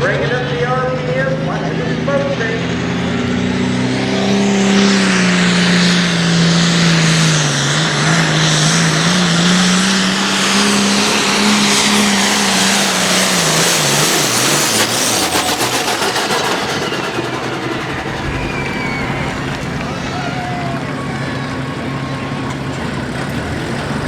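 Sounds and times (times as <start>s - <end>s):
diesel tractor engine at full power: 0.0s - 24.0s.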